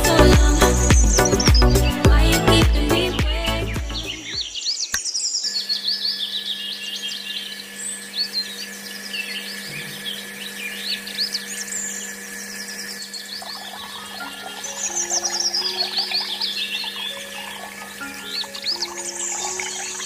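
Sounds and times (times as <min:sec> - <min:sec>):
birds chirping and singing: 0:00.2 - 0:20.0
small water pump humming: 0:05.4 - 0:20.0.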